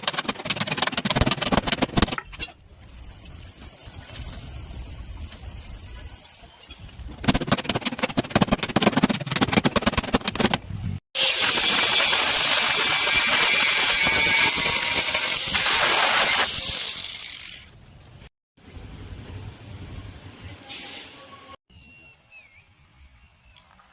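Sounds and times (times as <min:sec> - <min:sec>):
rapid rattling knocks: 0:00.0 - 0:02.4, 0:07.2 - 0:10.6.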